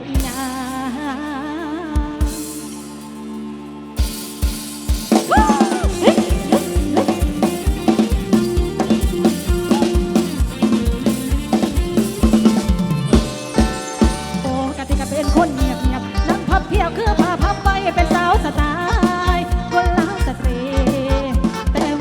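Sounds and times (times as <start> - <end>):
drum kit beat: 0.0 - 1.2, 2.0 - 22.0
bending melodic lead line: 0.0 - 22.0.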